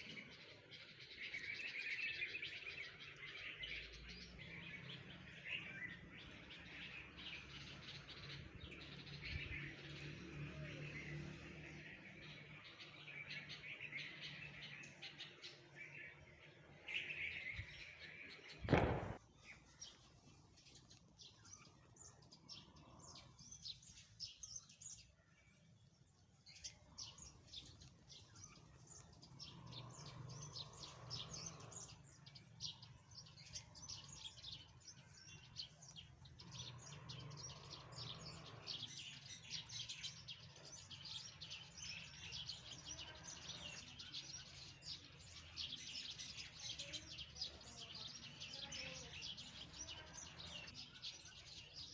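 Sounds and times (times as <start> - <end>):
small birds chirping: 0.0 - 51.9
sharp knock: 18.6 - 19.2.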